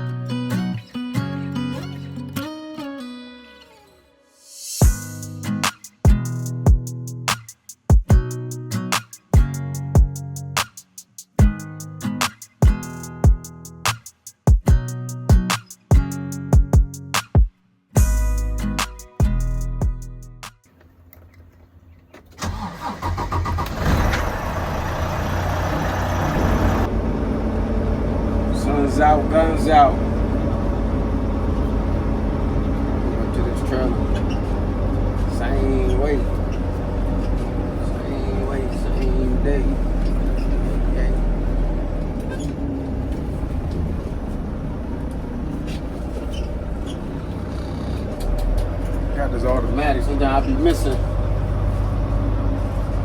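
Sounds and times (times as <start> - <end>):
diesel truck engine starting and running: 22.2 - 53.0.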